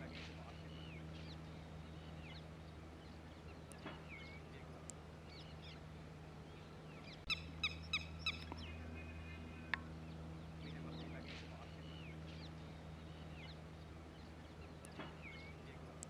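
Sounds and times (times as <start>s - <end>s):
birds chirping: 0.0s - 16.0s
steady low hum: 0.0s - 16.0s
bird giving sharp calls: 7.1s - 9.7s.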